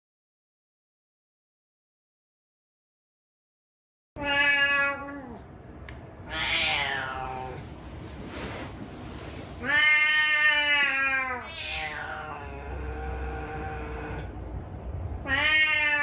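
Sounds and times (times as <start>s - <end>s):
cat meowing: 4.2s - 5.4s, 6.3s - 7.6s, 9.6s - 14.2s, 15.2s - 16.0s.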